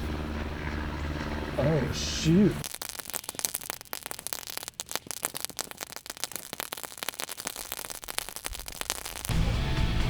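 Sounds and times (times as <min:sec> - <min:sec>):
firework crackling: 0:02.6 - 0:10.0.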